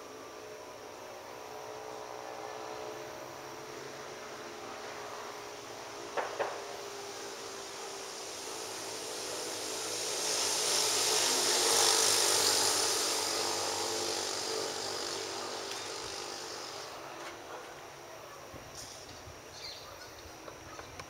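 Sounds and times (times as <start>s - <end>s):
tyre hiss on wet street: 0.0s - 17.5s.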